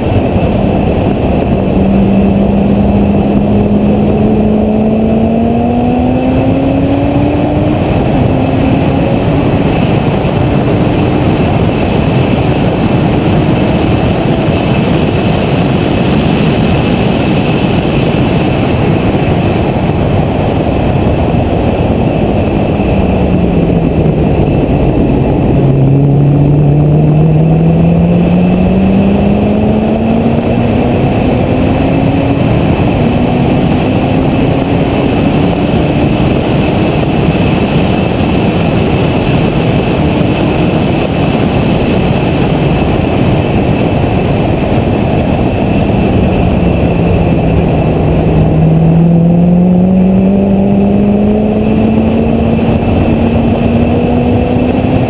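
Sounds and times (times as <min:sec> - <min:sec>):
car engine running hard: 0:00.0 - 0:55.0
wind and road noise: 0:00.0 - 0:55.0.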